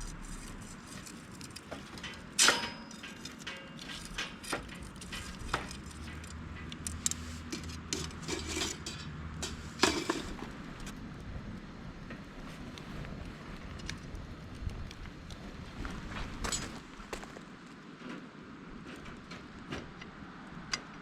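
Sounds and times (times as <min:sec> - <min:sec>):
metal cooking gear clinking: 0:00.9 - 0:10.4.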